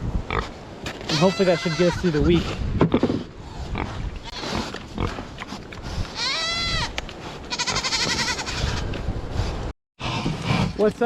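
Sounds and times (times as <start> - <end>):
wind rumble on microphone: 0.0 - 0.6, 2.0 - 7.4, 8.0 - 10.8
livestock bleating call: 7.5 - 8.6.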